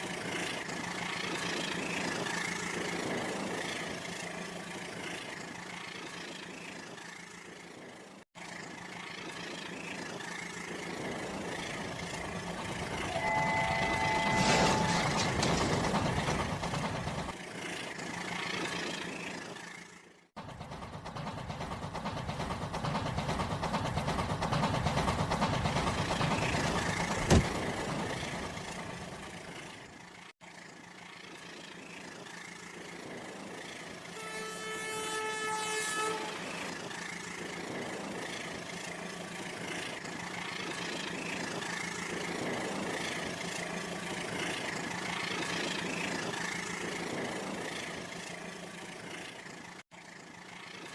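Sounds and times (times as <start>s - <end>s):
train running: 0.0s - 50.9s
train horn: 13.1s - 15.3s, 34.1s - 36.7s.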